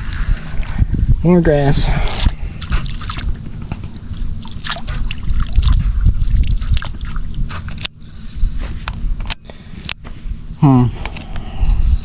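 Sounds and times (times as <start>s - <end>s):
steady low rumble: 0.0s - 12.0s
water dripping and sloshing: 2.1s - 7.9s.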